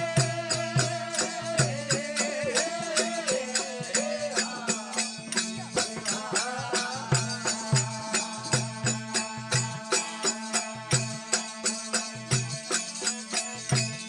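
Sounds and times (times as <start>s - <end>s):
percussion steady beat: 0.0s - 14.0s.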